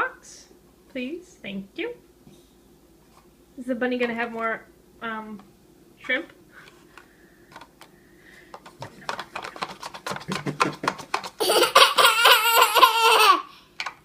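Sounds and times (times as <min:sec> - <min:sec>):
young child squealing laugh: 0:11.4 - 0:13.5.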